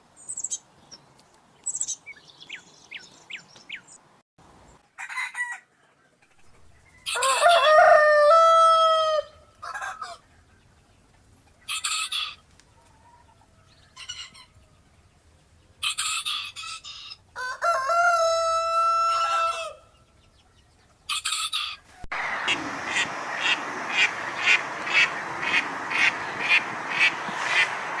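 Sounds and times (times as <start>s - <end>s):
rooster crowing: 5.0s - 5.7s, 7.0s - 10.2s, 17.4s - 19.9s
chicken clucking: 9.6s - 17.8s, 18.8s - 27.9s
steady hiss: 22.1s - 28.0s.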